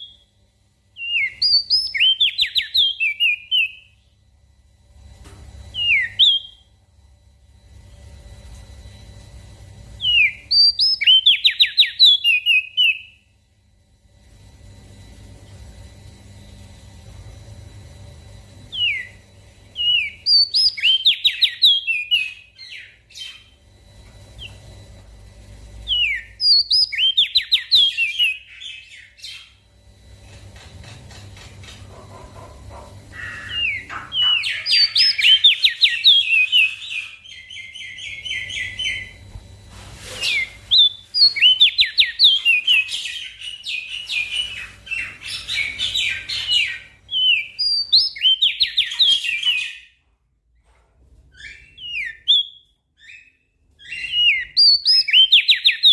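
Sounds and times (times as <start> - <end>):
songbird chirping and trilling: 0.0 - 4.2, 5.7 - 6.7, 10.0 - 13.3, 18.7 - 23.7, 25.8 - 29.8, 32.2 - 39.3, 40.3 - 50.0, 51.4 - 55.9
faint low hum: 0.0 - 55.9.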